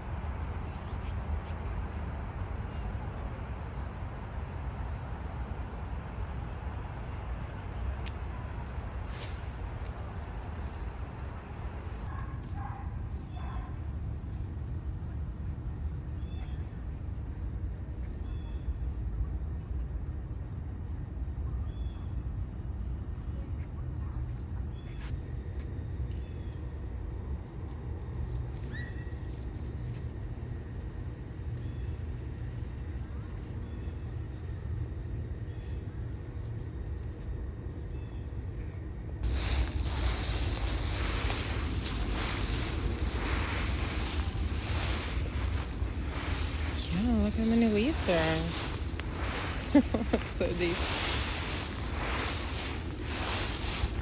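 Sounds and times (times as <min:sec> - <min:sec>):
city street traffic rumble: 0:00.0 - 0:54.0
short hiss: 0:39.2 - 0:54.0.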